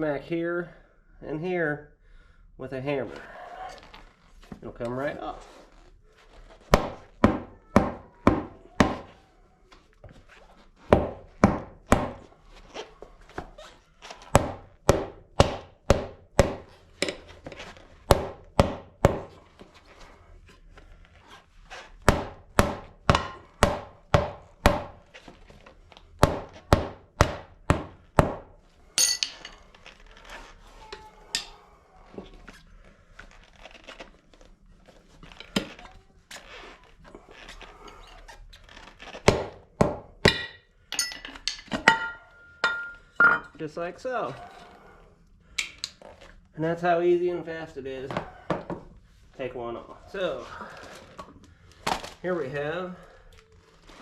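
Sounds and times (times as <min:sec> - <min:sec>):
hammer striking tire: 0:22.1 - 0:25.0, 0:26.2 - 0:29.4, 0:39.3 - 0:40.6.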